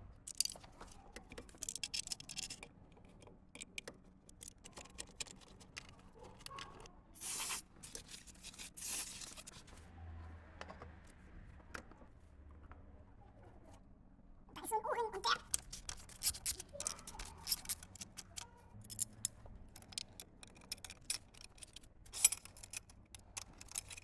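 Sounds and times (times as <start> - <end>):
clicks and taps of parts handled: 0.3 - 6.9, 15.5 - 24.0
short hissing bursts: 7.2 - 7.6.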